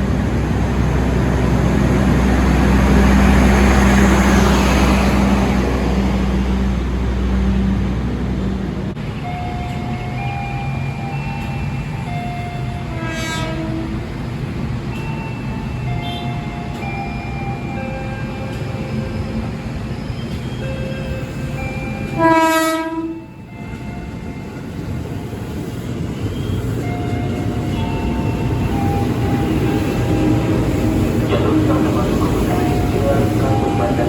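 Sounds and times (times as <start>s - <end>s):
train rumbling: 0.0s - 34.0s
train horn blast: 12.8s - 14.1s, 22.2s - 23.3s.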